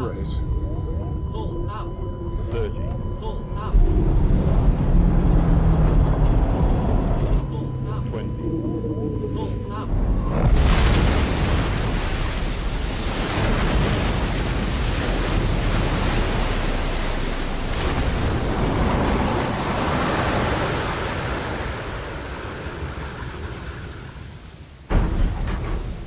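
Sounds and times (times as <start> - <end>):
rushing water and spray: 9.9 - 26.0.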